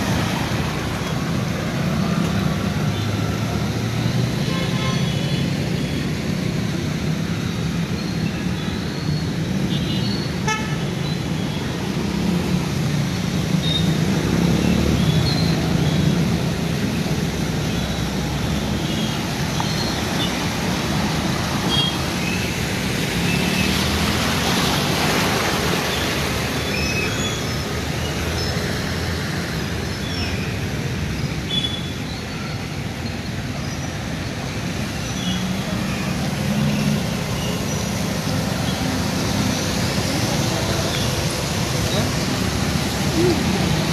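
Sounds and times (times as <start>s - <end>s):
tyres hissing on wet road: 0.0s - 43.9s
vehicle engines running: 11.2s - 43.9s.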